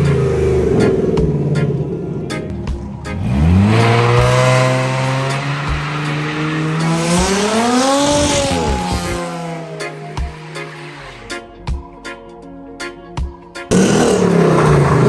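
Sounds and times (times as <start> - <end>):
car engine revving: 0.0 - 11.4, 13.7 - 15.0.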